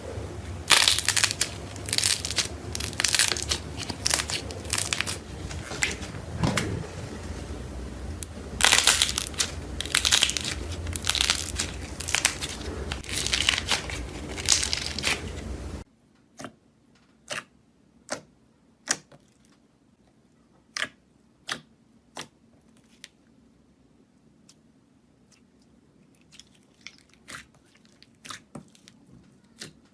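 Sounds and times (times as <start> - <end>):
low hum: 0.0 - 15.8
crunchy material crinkled by hand: 0.7 - 15.8.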